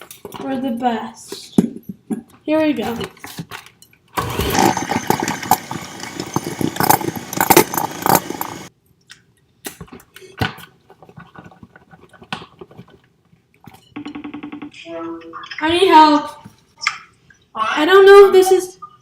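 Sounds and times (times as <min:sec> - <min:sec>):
electric mixer whirring: 0:04.2 - 0:08.7.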